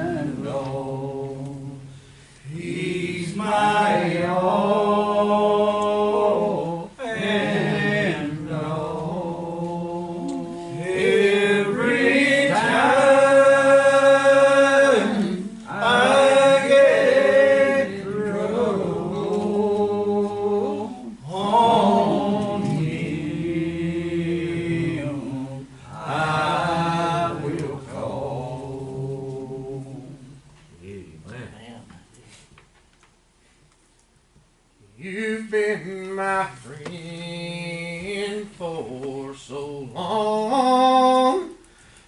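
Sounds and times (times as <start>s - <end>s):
church singing: 0.0s - 30.4s.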